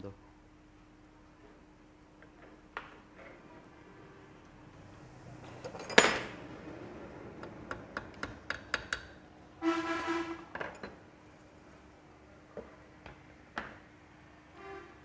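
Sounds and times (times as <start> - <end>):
metal parts and tools clinking: 5.6 - 6.4.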